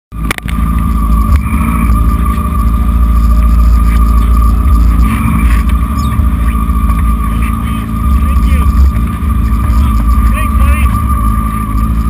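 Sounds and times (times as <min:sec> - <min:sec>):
racing motorcycle engine: 0:00.1 - 0:12.0.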